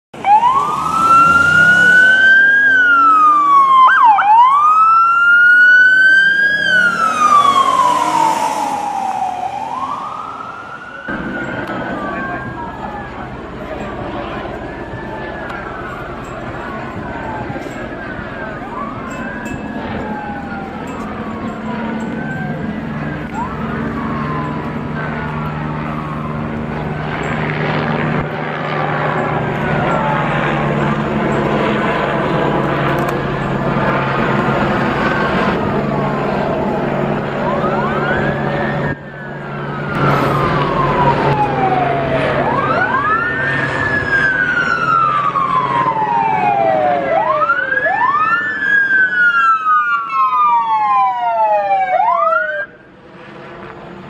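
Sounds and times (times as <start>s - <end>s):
police siren wailing: 0.2s - 54.0s
road noise: 0.2s - 54.0s.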